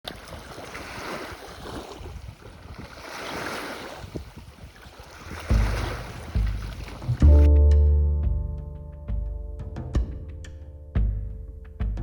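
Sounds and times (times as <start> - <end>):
lake waves washing in: 0.0 - 7.5
wind on microphone: 0.2 - 7.5.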